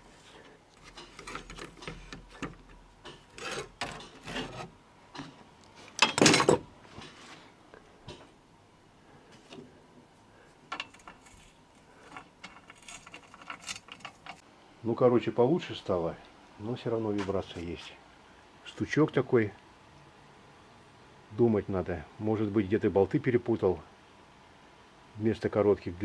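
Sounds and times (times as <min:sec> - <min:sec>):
scraping: 0:00.0 - 0:07.5, 0:10.7 - 0:14.4.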